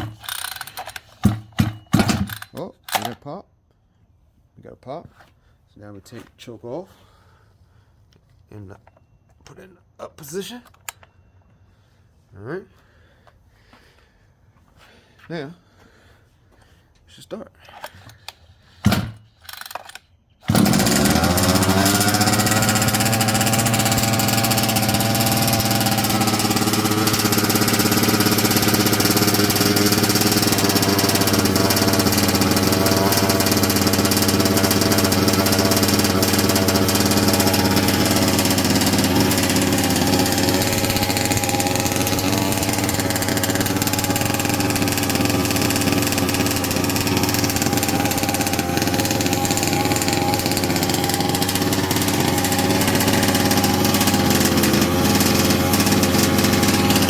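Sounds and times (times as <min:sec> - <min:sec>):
two-stroke engine starting and idling: 0:00.0 - 0:03.2, 0:18.7 - 0:57.0.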